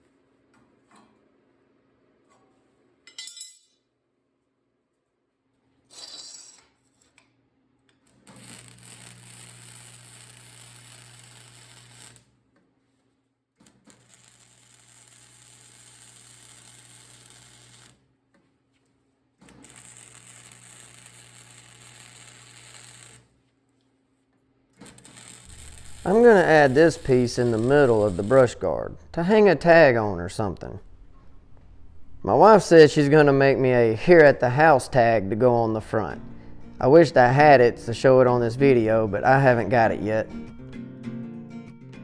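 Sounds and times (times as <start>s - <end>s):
welder hissing: 8.4s - 12.2s, 25.0s - 29.7s.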